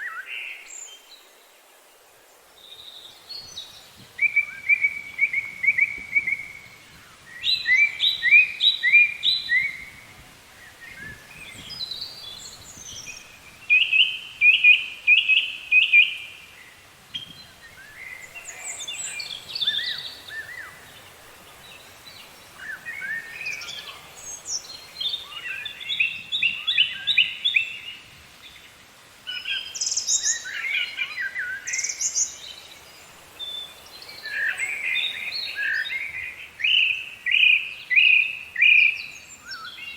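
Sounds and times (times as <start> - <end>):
faint background hiss: 0.0 - 39.9
songbirds chirping: 0.0 - 39.9.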